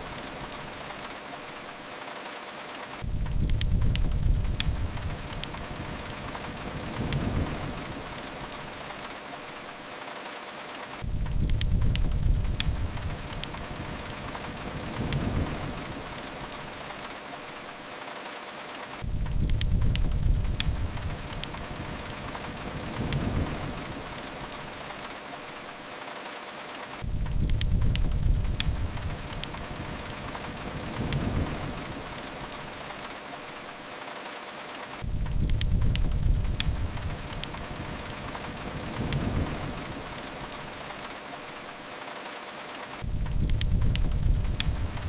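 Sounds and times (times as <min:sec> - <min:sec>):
fire crackling: 0:00.0 - 0:45.0
rain hiss: 0:00.0 - 0:45.0
low rumble: 0:43.0 - 0:45.0.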